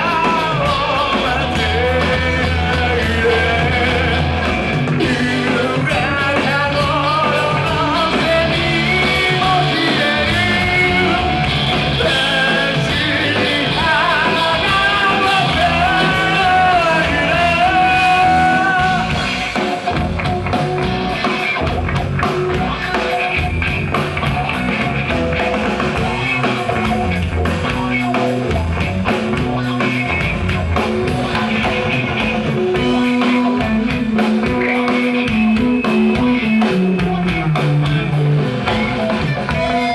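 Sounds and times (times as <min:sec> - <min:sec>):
person singing: 0:00.0 - 0:19.7, 0:31.1 - 0:39.9
rock band playing: 0:00.0 - 0:39.9.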